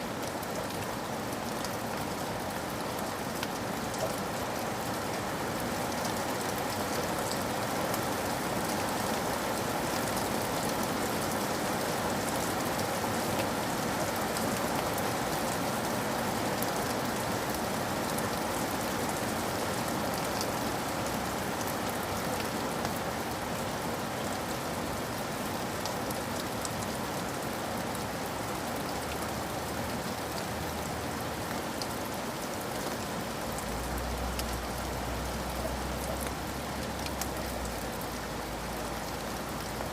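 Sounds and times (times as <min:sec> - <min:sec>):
steady rain falling: 0:00.0 - 0:39.9
raindrops ticking: 0:32.8 - 0:39.9.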